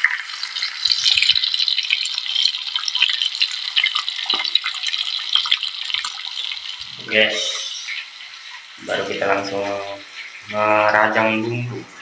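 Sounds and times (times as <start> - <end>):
shrimp sizzling in hot oil: 0.0 - 11.4.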